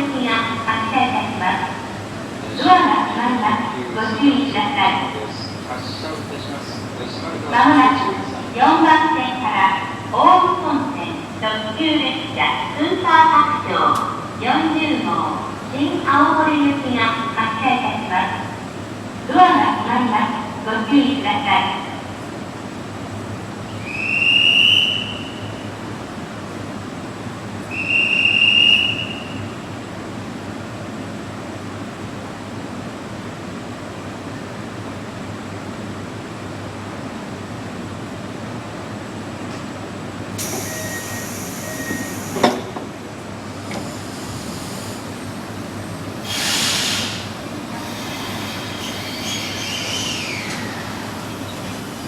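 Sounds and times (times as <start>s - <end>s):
electric train humming: 0.0s - 52.0s
compressed air hissing: 40.4s - 42.5s, 43.6s - 45.5s, 46.2s - 52.0s
train wheel squeal: 40.4s - 42.6s, 46.2s - 47.2s, 47.8s - 52.0s.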